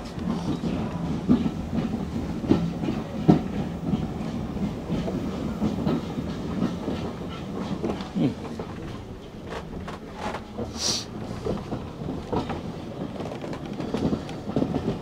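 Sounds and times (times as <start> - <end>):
railway carriage low rumble: 0.0 - 15.0
wheels clacking over rail joints: 0.0 - 15.0.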